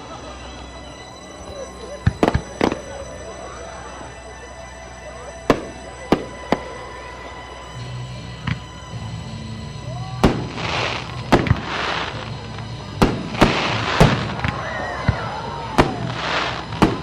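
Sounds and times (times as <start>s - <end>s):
hissing crackle of fireworks: 0.0s - 17.0s
firework shells bursting: 10.2s - 17.0s.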